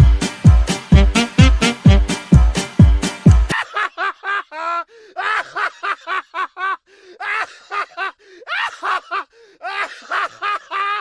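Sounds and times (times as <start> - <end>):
high-pitched laughter: 3.5 - 11.0.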